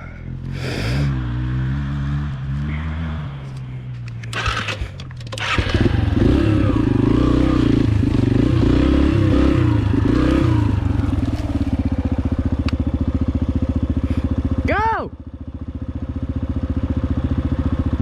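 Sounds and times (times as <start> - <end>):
dirt bike engine revving: 0.3 - 12.6.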